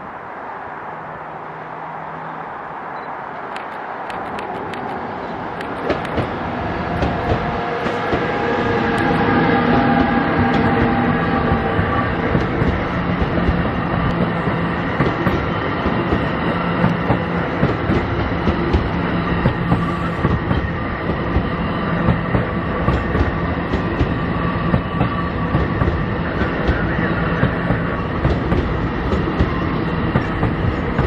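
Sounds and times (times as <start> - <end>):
rumble of train wheels on rail: 0.0 - 31.0
wheels clacking over track joints: 3.6 - 31.0.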